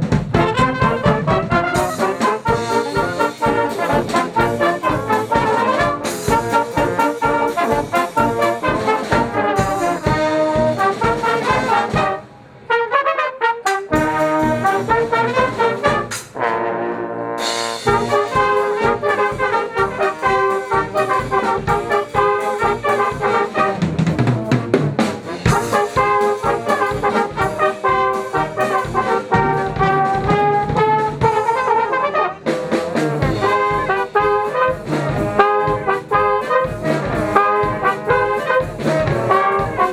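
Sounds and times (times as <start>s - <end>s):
brass band playing: 0.0s - 39.9s.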